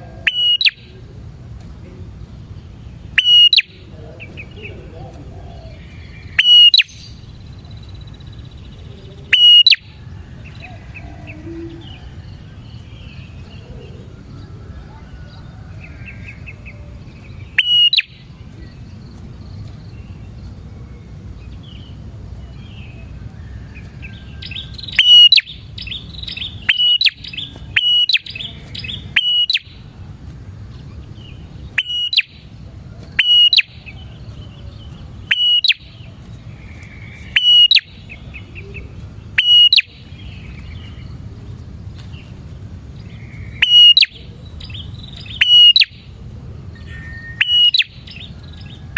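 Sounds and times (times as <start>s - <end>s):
low background noise: 0.0s - 48.9s
soft bird twittering: 0.0s - 48.9s
bird singing sharp high notes: 0.3s - 0.9s, 3.1s - 4.6s, 5.8s - 8.5s, 9.3s - 9.9s, 17.4s - 18.3s, 24.5s - 29.8s, 35.2s - 36.1s, 37.0s - 38.2s, 39.4s - 40.6s, 43.4s - 46.1s, 46.8s - 48.3s.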